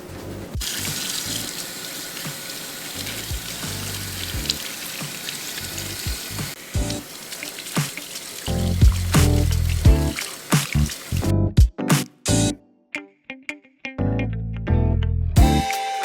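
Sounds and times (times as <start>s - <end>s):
tap water running into sink: 0.6s - 11.3s
music with steady beat: 3.3s - 4.6s, 6.1s - 7.0s, 8.7s - 12.6s, 15.4s - 16.0s.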